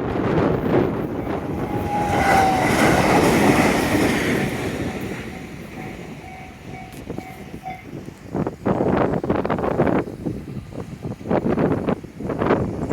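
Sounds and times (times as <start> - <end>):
train rumbling: 0.0 - 12.9
level crossing warning bell: 1.3 - 8.2.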